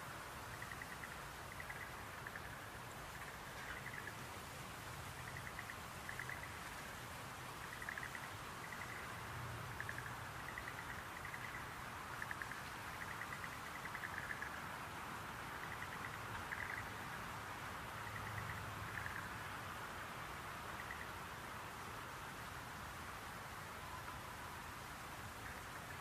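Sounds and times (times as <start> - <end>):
steady hiss: 0.0 - 26.0
frogs calling in pulsed trills: 0.5 - 4.2, 5.1 - 6.7, 7.6 - 14.8, 15.5 - 17.3, 17.9 - 19.5, 20.7 - 21.2.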